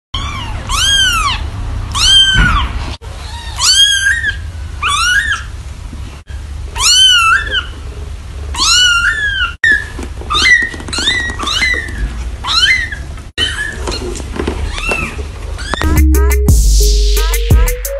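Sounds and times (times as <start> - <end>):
kittens mewing: 0.2 - 5.6, 6.4 - 7.9, 8.5 - 15.9.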